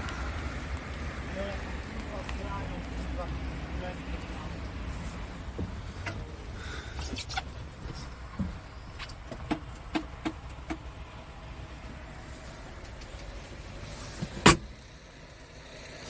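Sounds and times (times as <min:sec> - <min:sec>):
light clicks and taps: 0:00.0 - 0:10.9, 0:12.7 - 0:13.6
low steady rumble: 0:00.0 - 0:16.0.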